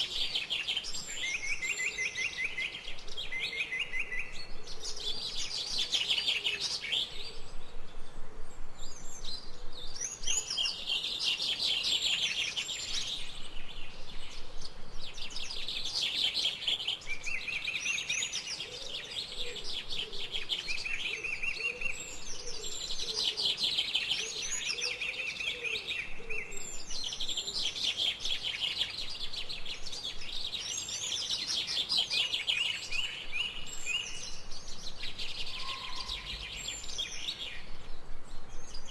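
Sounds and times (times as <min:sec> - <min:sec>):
birds trilling song: 0:00.0 - 0:38.9
faint background hiss: 0:00.0 - 0:38.9
soft low bird calls: 0:00.0 - 0:38.9.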